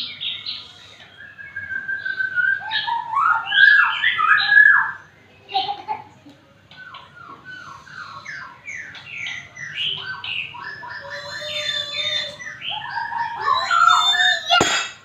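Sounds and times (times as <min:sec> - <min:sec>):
songbird singing whistled phrases: 0:00.0 - 0:05.1, 0:06.7 - 0:14.8
sharp knock: 0:14.6 - 0:15.0.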